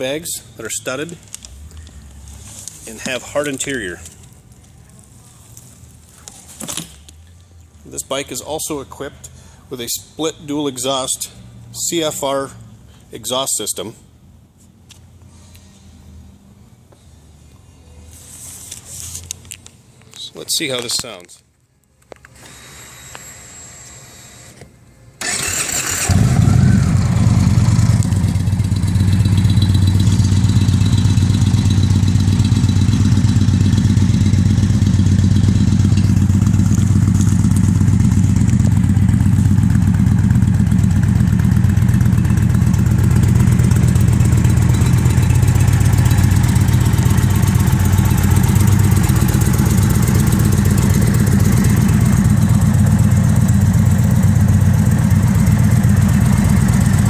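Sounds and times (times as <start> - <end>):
motorcycle engine starting and idling: 25.2 - 57.0.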